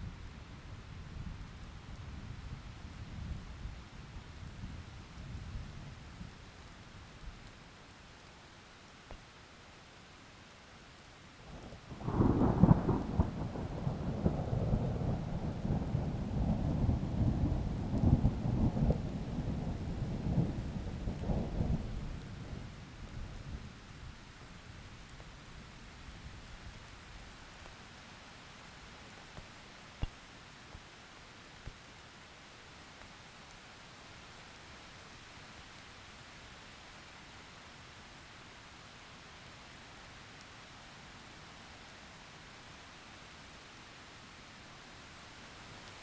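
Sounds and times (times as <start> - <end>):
steady rain: 0.0 - 46.0
thunder rumbling: 11.9 - 22.7.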